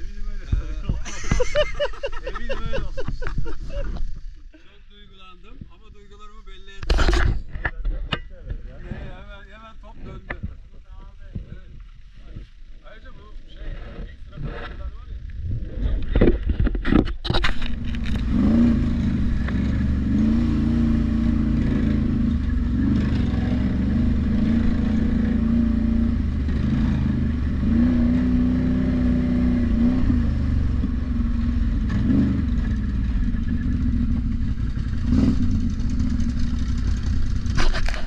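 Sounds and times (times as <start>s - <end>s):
atv engine running: 8.7s - 38.0s.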